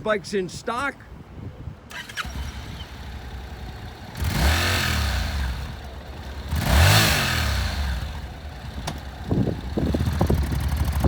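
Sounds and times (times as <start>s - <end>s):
engine revving: 1.9s - 11.0s
motorcycle engine idling: 2.2s - 11.0s.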